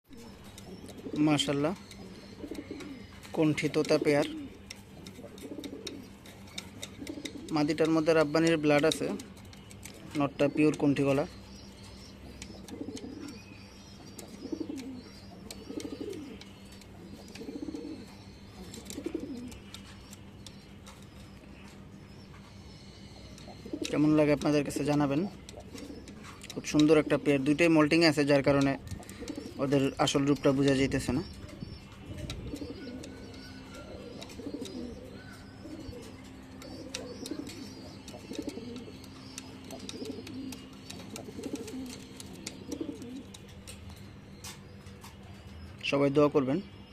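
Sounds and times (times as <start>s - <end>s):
pigeon cooing: 0.1s - 8.0s, 12.4s - 13.5s, 14.1s - 20.2s, 23.2s - 24.1s, 25.4s - 27.5s, 28.9s - 30.3s, 31.4s - 43.4s.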